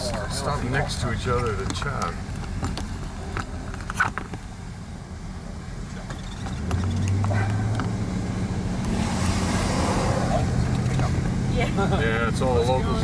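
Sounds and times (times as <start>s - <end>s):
vehicle engine humming: 0.0s - 13.0s
rush of noise: 8.4s - 11.5s.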